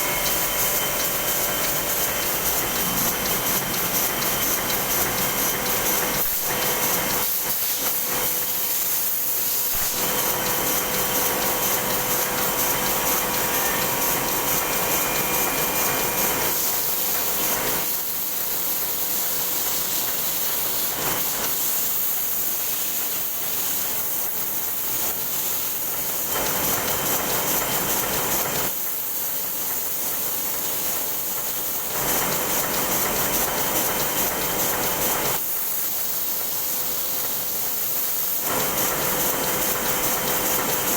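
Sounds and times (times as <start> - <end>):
printing press hiss and clatter: 0.0 - 40.9.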